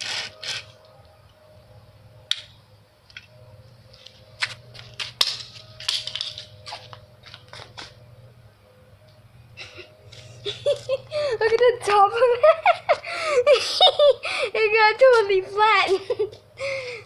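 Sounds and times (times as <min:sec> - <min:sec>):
toy car being crushed: 0:00.0 - 0:00.7, 0:04.4 - 0:07.6.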